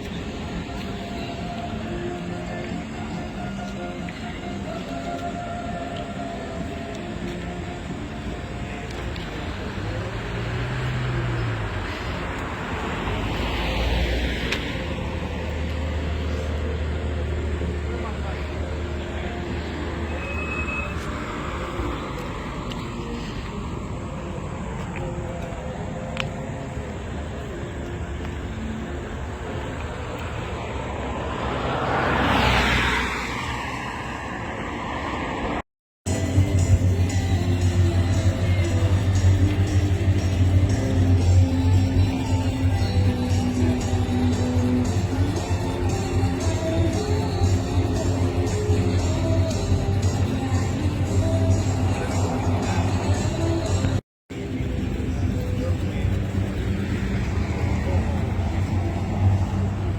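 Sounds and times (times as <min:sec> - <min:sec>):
music: 0:00.0 - 0:11.4, 0:36.1 - 0:59.9
low engine hum: 0:00.0 - 0:33.6, 0:34.2 - 0:59.9
vehicle passing by: 0:07.4 - 0:24.4, 0:28.1 - 0:59.9
car driving past: 0:09.5 - 0:23.2, 0:29.4 - 0:53.9.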